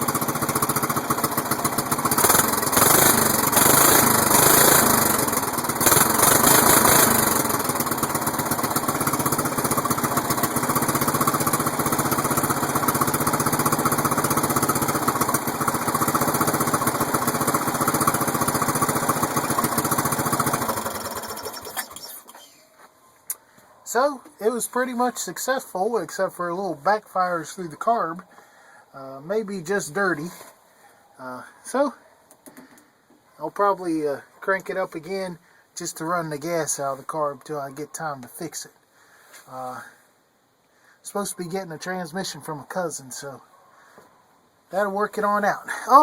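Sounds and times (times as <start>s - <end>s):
riding mower engine running: 0.0s - 22.4s.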